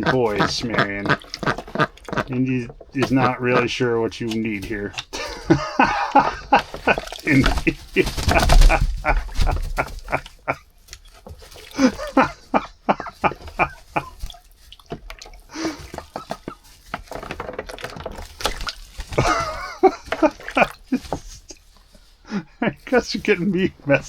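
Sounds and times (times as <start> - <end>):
ducks dabbling: 0.0 - 24.0
ducks quacking: 0.0 - 24.0
splashing in water: 0.0 - 24.0.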